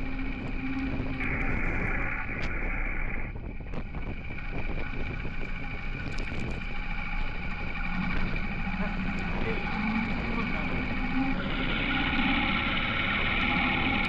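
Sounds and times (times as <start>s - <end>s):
wind noise on microphone: 0.0s - 13.9s
motorcycle engine running: 3.5s - 14.0s.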